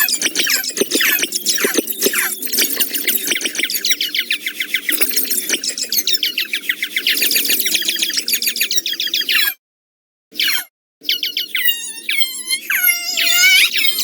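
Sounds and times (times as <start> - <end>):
high-pitched squeaks: 0.0 - 3.7.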